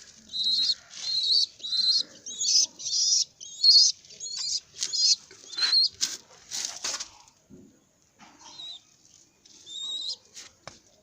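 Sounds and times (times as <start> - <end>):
baby pigeon peeping: 0.0 - 6.2, 8.4 - 10.3.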